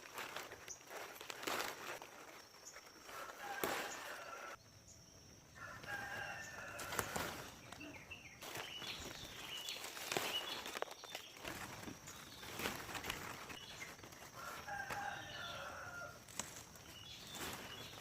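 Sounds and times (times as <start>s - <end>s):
small birds chirping: 0.0s - 18.0s
rooster crowing: 3.1s - 4.6s, 5.5s - 7.6s, 14.3s - 16.3s.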